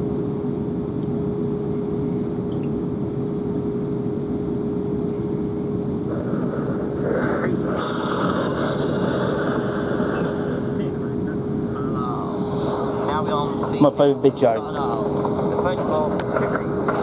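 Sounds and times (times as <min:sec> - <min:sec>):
constant whine: 0:00.0 - 0:17.0
high hiss: 0:06.2 - 0:17.0
train running rumble: 0:11.9 - 0:17.0.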